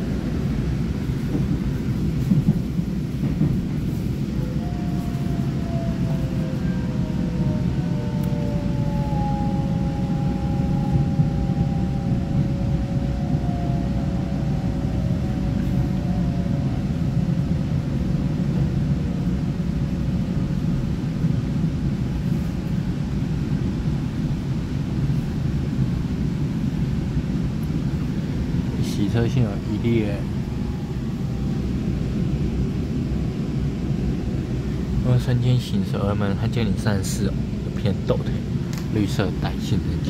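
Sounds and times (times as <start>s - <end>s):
train running rumble: 0.0s - 40.0s
traction motor whine: 4.3s - 18.1s, 29.3s - 33.5s.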